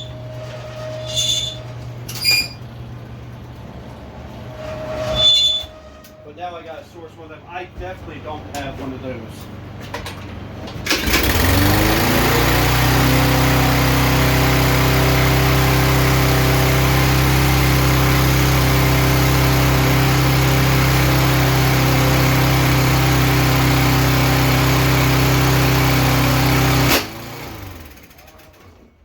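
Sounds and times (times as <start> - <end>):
lawnmower engine running: 9.6 - 28.9.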